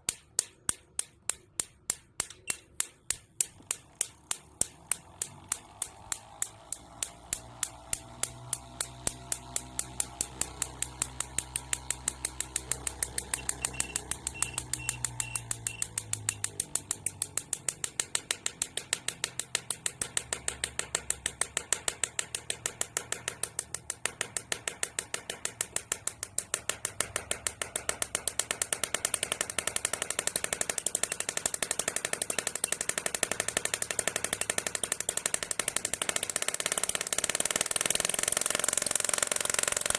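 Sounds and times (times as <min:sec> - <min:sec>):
high-voltage sparks snapping: 0:00.0 - 0:39.9
low motor hum: 0:03.8 - 0:21.5.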